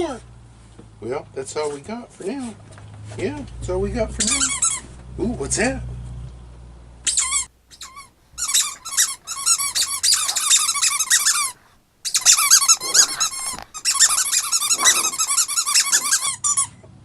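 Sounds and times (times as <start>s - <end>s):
squeaky dog toy squeaking: 4.2s - 5.0s, 7.0s - 16.8s.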